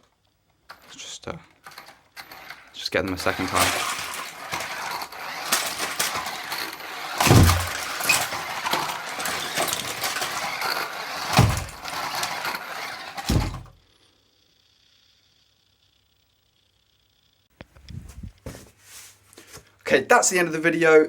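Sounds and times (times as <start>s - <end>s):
plastic bricks clattering and crunching: 1.6s - 13.8s
heavy thumps: 3.4s - 8.6s, 13.2s - 13.8s.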